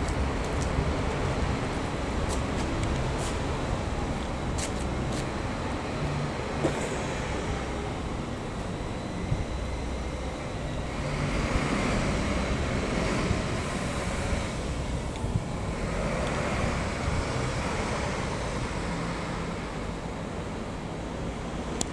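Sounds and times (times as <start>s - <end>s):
moving vehicle rumble and hiss: 0.0s - 21.9s.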